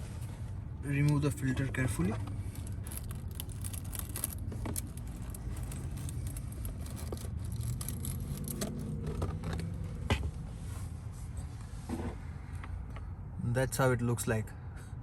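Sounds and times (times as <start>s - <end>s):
filter scraping against plastic: 2.0s - 9.7s.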